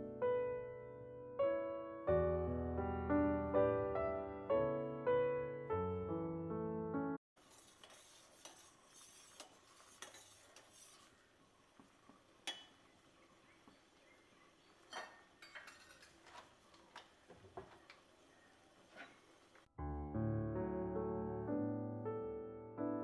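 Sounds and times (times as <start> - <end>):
syrup boiling in a pot: 7.4 - 15.4.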